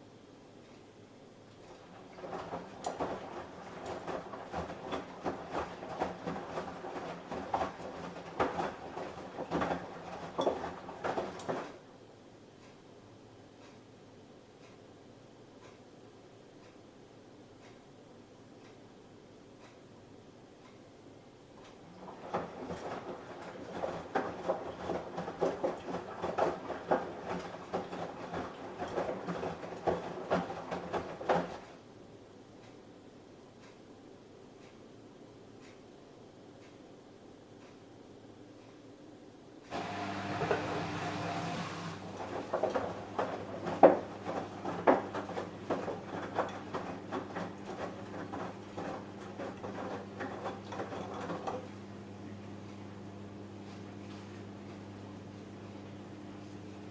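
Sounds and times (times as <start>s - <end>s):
laundry tumbling and splashing: 1.7s - 11.8s, 21.9s - 31.8s, 39.7s - 52.5s
washing machine drum knocking: 1.9s - 11.8s, 21.9s - 31.7s, 42.0s - 51.7s.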